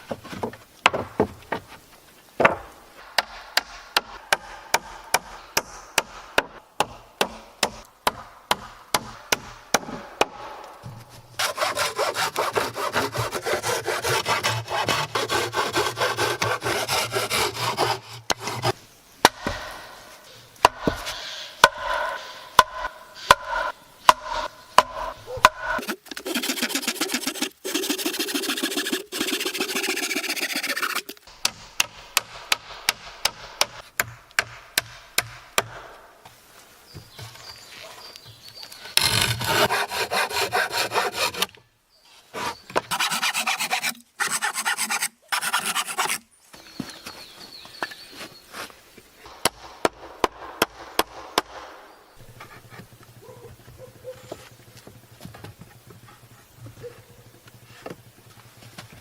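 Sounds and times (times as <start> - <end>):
saw cutting wood: 11.4 - 18.8, 20.7 - 31.6, 39.0 - 41.5, 42.4 - 46.2.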